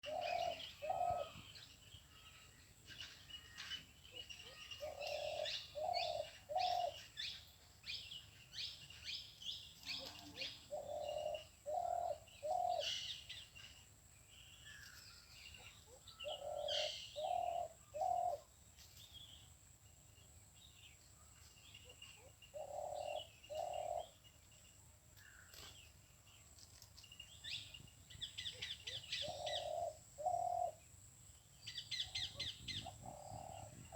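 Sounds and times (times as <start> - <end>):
dove cooing: 0.0 - 1.5, 4.4 - 7.1, 9.9 - 13.1, 15.9 - 18.5, 22.5 - 24.2, 28.4 - 30.8, 31.9 - 33.9
birds chirping and chattering: 0.0 - 33.9.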